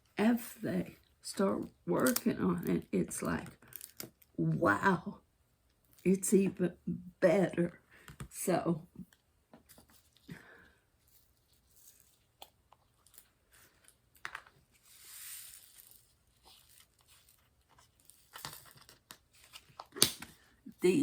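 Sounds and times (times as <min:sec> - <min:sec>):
soft plastic rustle: 0:09.1 - 0:20.6.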